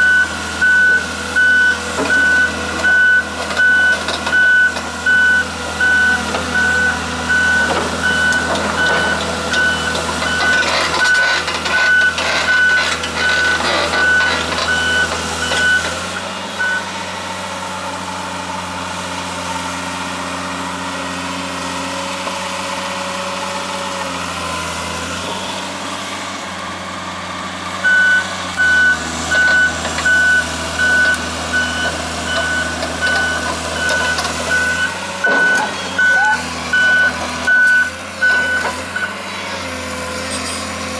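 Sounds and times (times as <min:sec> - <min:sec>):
travel alarm beeping: 0:00.0 - 0:16.0, 0:16.6 - 0:16.9, 0:27.8 - 0:39.2
diesel engine running: 0:00.0 - 0:40.9.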